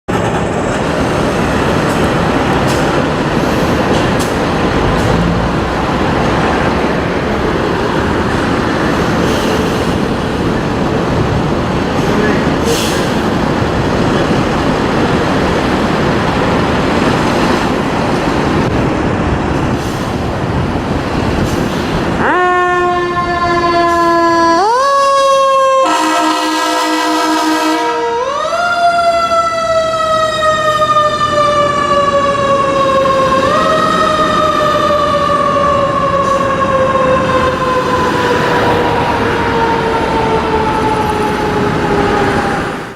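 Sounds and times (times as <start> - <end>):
fire engine running noise: 0.1 - 42.9
fire engine siren wailing: 22.1 - 42.9.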